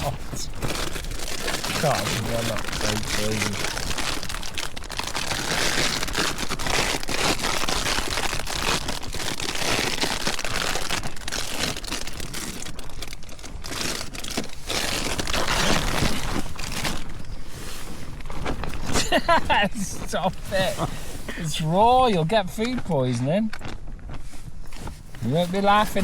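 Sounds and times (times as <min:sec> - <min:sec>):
nylon fabric crinkling in wind: 0:00.0 - 0:26.0.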